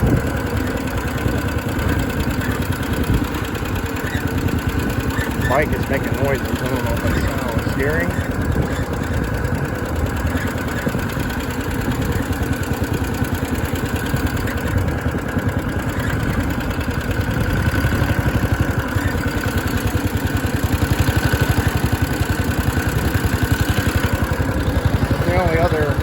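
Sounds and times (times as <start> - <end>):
minibike engine running: 0.0 - 26.0
high squeak from bike: 4.0 - 5.9.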